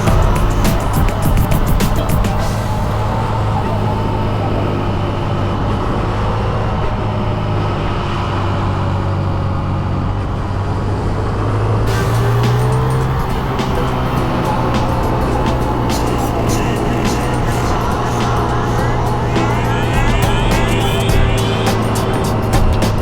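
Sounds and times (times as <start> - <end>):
motorcycle engine running: 0.0 - 7.3, 11.9 - 23.0.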